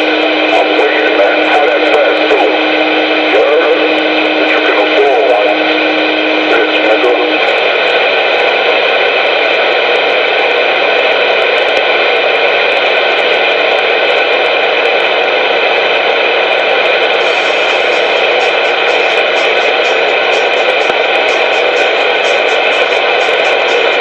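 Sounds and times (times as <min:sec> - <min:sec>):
faint steady tones: 0:00.0 - 0:08.8, 0:16.6 - 0:24.0
radio static hiss: 0:00.0 - 0:24.0.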